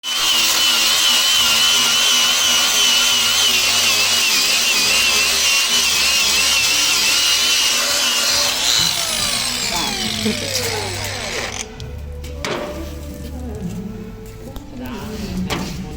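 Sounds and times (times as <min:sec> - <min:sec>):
angle grinder running: 0:00.0 - 0:11.8.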